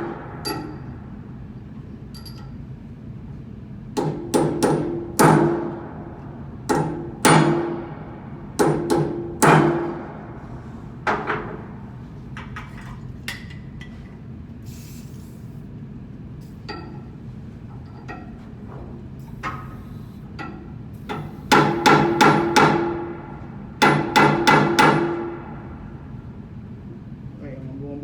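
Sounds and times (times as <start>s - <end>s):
hammer striking metal: 8.6s - 10.0s, 21.1s - 23.2s, 23.8s - 25.6s.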